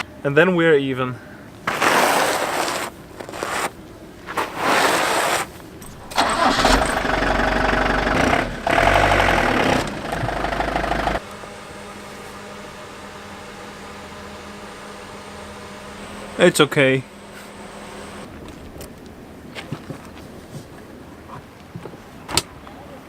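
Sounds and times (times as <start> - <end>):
faint steady hum: 0.0 - 4.6
motorhome engine starting and running: 2.8 - 21.7.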